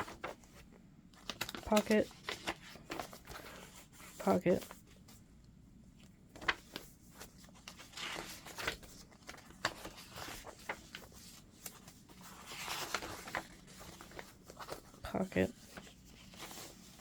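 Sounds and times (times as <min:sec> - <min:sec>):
pages rustling: 0:00.0 - 0:05.2, 0:06.0 - 0:17.0.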